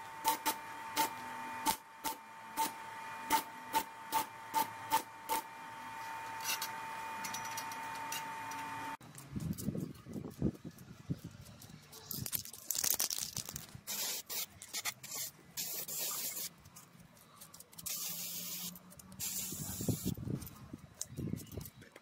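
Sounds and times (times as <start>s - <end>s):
spray hissing: 13.9s - 16.5s, 17.8s - 20.1s.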